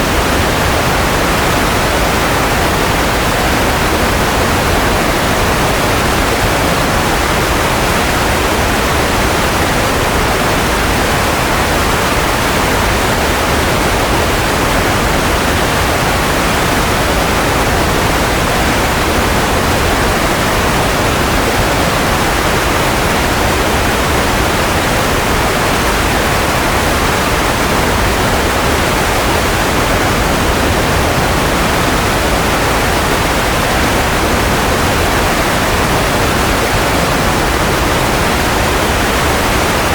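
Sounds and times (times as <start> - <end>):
steady white noise hiss: 0.0 - 39.9.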